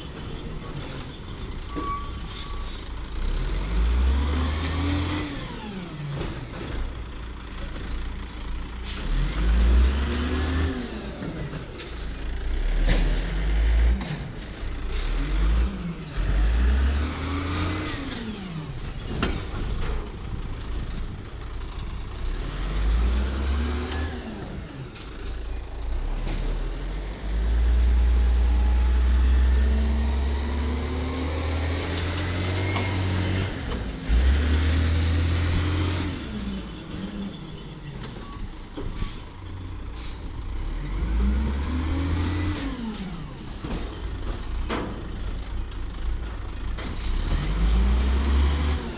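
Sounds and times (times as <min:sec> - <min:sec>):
air brake hisses: 0:01.6 - 0:03.0, 0:08.8 - 0:09.2, 0:38.3 - 0:40.3
garbage truck diesel engine revving: 0:03.0 - 0:38.4, 0:39.0 - 0:48.9.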